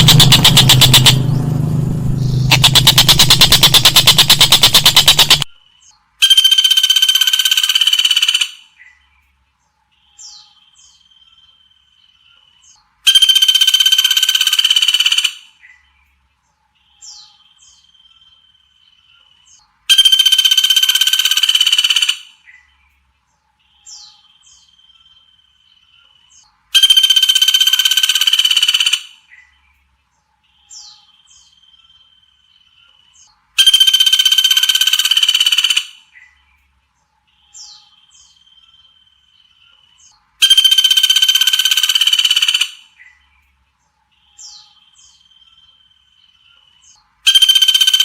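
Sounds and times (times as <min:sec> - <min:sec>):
harsh buzzing bird call: 0:00.0 - 0:05.5, 0:06.2 - 0:08.6, 0:13.1 - 0:15.5, 0:19.9 - 0:22.3, 0:26.8 - 0:29.2, 0:33.6 - 0:36.1, 0:40.4 - 0:42.9, 0:47.3 - 0:48.0
high downward chirps: 0:00.0 - 0:05.5.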